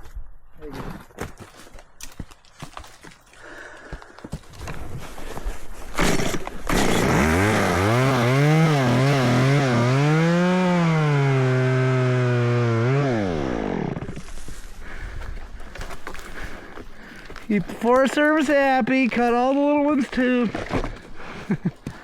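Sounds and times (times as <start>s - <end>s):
chainsaw revving and cutting: 6.0s - 14.3s.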